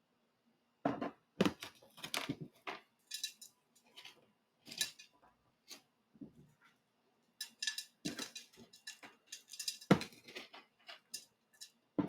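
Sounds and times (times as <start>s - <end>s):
potting mix scraping and rattling: 1.4s - 5.1s, 7.4s - 11.8s.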